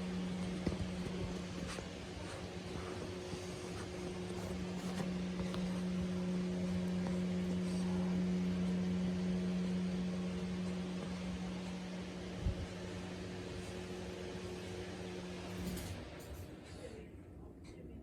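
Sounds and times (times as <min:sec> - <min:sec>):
appliance humming: 0:00.0 - 0:17.9.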